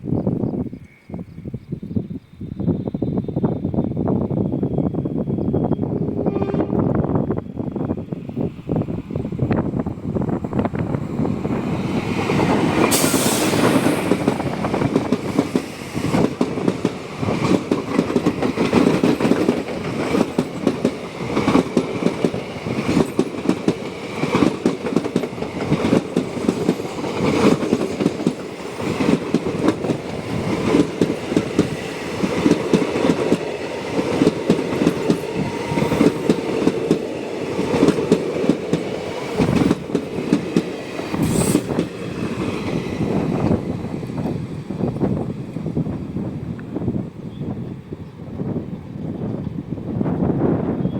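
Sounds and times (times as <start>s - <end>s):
train rumble: 0.0s - 50.9s
train wheels clattering over rails: 10.4s - 46.8s.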